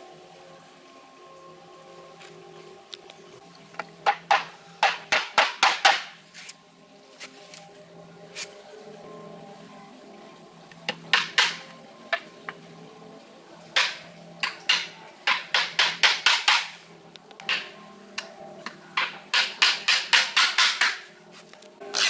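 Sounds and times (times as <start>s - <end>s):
hammer striking nails into wood: 4.1s - 6.1s, 19.3s - 21.0s.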